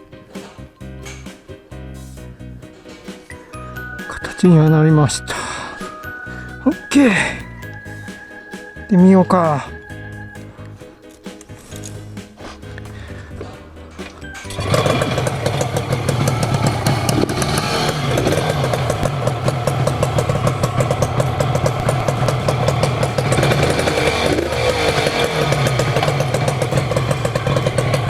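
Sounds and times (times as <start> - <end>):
two-stroke engine idling: 14.5 - 28.0.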